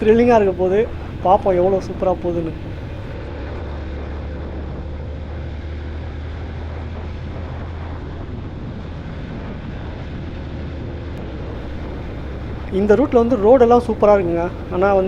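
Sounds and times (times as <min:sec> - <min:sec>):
motorcycle engine drone: 0:00.0 - 0:15.0
wind rush on microphone: 0:00.0 - 0:15.0.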